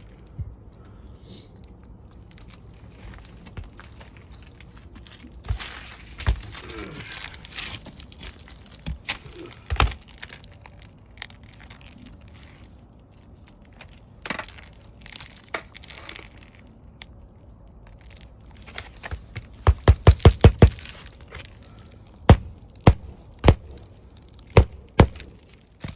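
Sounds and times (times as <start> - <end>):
shingle crinkling: 1.6 - 25.9
hammer striking nails: 19.6 - 20.8.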